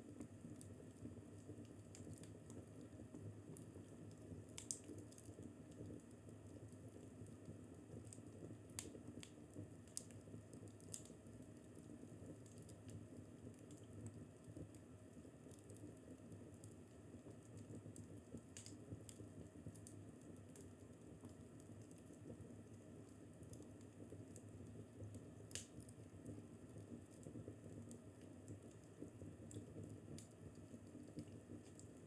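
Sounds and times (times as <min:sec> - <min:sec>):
fireplace crackling: 0:04.5 - 0:05.8, 0:08.1 - 0:13.9, 0:16.6 - 0:32.0.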